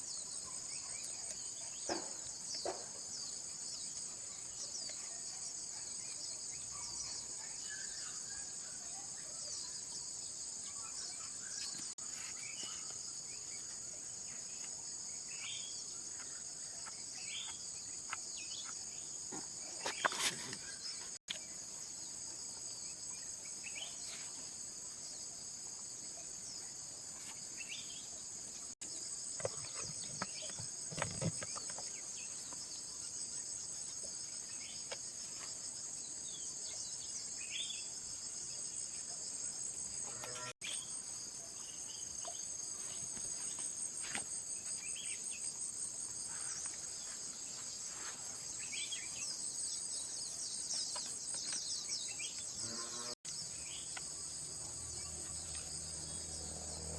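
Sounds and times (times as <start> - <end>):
insects chirring: 0.0 - 56.9
faint handling knocks and scrapes: 19.3 - 21.2.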